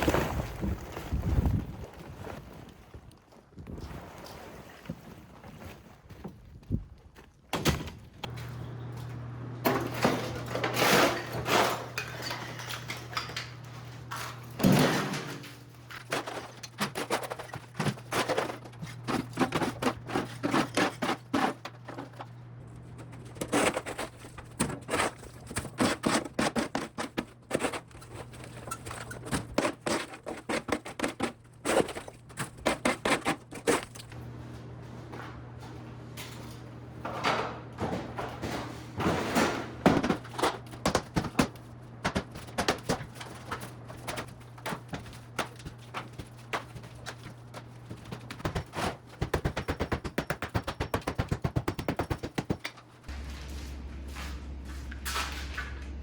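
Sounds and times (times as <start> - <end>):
demolition knocks and clattering: 9.7 - 53.2
steady low hum: 31.4 - 56.0.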